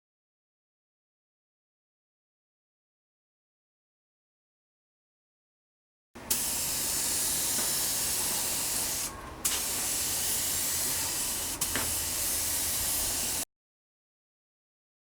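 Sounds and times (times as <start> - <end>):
pressurised spray hissing: 6.2 - 13.4.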